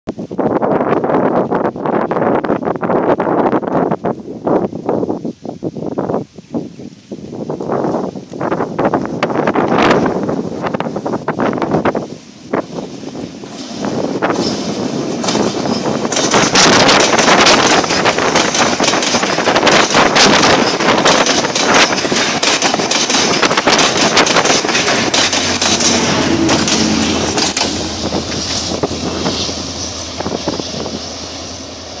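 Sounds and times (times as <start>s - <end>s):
rush of passing train: 0.1s - 32.0s
train wheels clattering: 9.4s - 32.0s.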